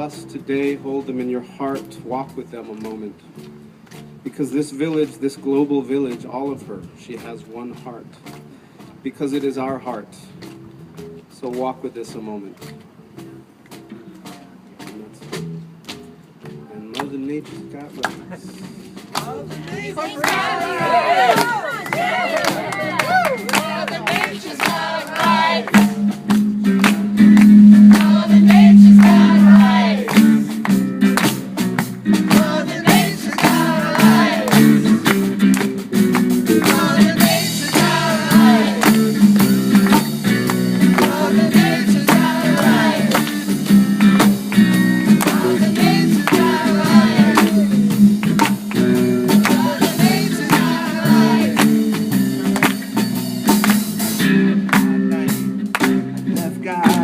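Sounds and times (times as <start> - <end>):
live band with guitar and percussion: 0.0 - 57.0
person singing: 27.5 - 30.3, 45.1 - 48.1, 49.3 - 51.8.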